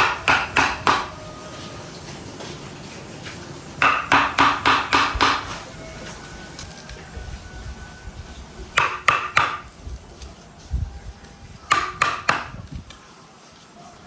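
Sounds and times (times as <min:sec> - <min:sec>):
sharp knocks on wood: 0:03.8 - 0:05.5.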